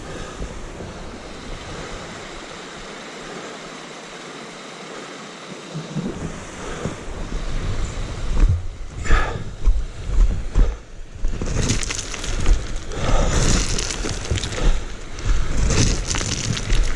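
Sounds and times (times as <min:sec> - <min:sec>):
low rumbling buffets: 0:05.8 - 0:16.9
wind rushing over microphone: 0:05.8 - 0:16.9.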